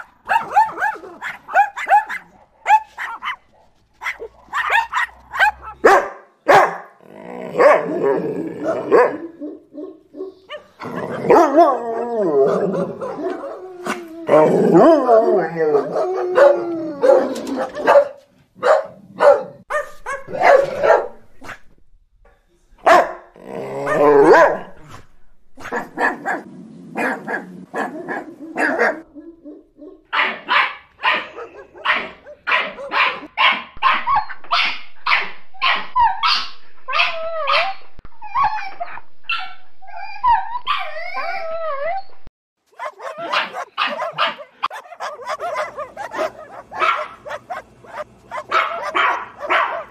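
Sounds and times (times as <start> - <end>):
dogs crying high: 0.0 - 3.4, 4.0 - 5.9, 7.6 - 18.1, 25.6 - 42.1, 42.8 - 49.9
dogs barking: 0.0 - 14.0, 14.7 - 21.8, 22.8 - 37.9, 42.7 - 49.9.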